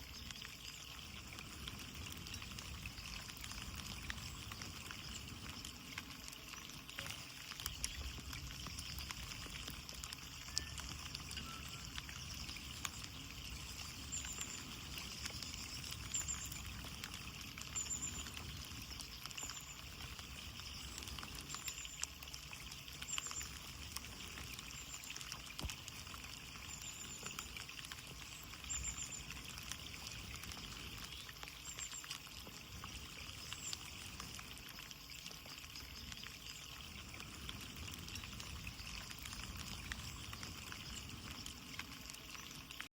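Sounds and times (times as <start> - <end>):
rain on a window: 0.0 - 42.9
faint high chirps: 10.2 - 22.1.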